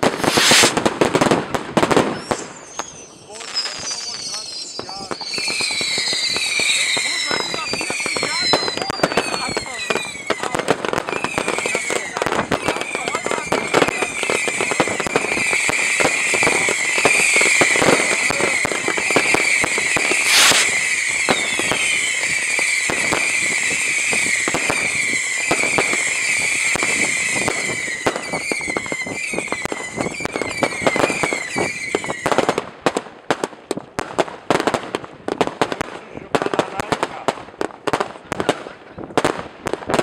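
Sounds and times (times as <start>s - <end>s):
firework whistle: 0.0s - 0.9s, 2.0s - 32.6s
firework bang: 0.0s - 3.4s, 4.0s - 32.6s
fireworks crackling and popping: 0.0s - 40.0s.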